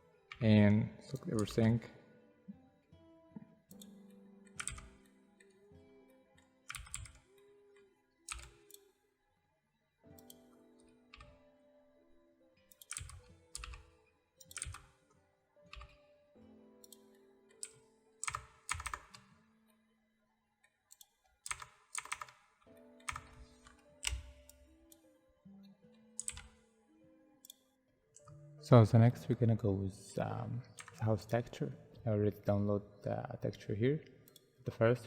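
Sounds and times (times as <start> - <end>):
quiet background music: 0.0 - 35.0
keyboard and mouse clicking: 1.1 - 1.7, 3.7 - 5.1, 6.7 - 7.3, 8.3 - 8.9, 10.1 - 10.4, 11.1 - 11.4, 12.7 - 15.0, 15.7 - 16.0, 16.8 - 19.3, 20.9 - 25.1, 26.2 - 26.7, 30.8 - 31.4.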